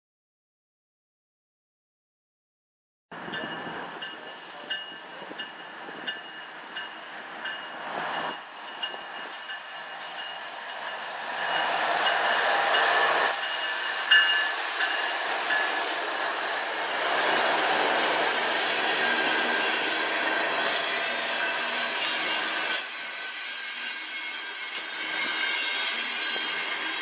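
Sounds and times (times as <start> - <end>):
freight train rolling past: 3.2 - 27.0
high hiss: 12.5 - 16.0.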